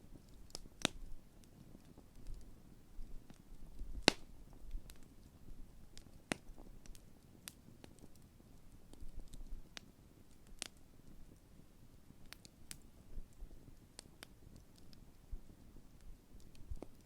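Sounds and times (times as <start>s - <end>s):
campfire crackling and popping: 0.1s - 17.0s.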